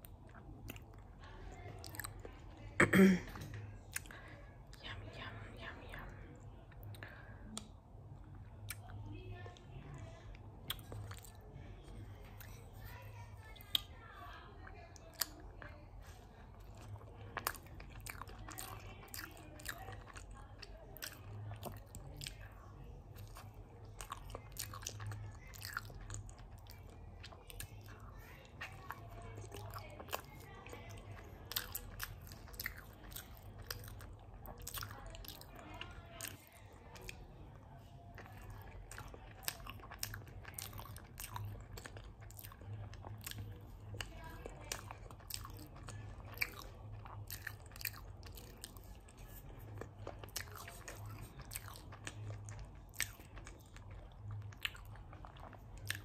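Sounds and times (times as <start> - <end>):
biting and chewing cake: 0.0 - 56.0.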